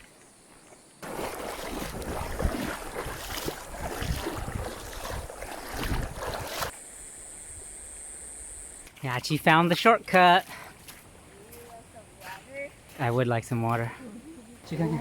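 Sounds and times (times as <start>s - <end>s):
wind buffeting microphone: 2.0s - 6.6s.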